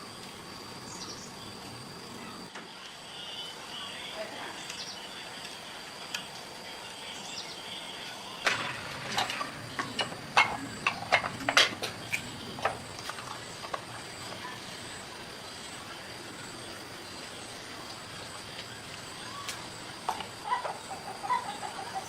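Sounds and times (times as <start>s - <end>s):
insect chirring: 0.0s - 22.0s
hand tools knocking and clicking: 8.5s - 13.8s.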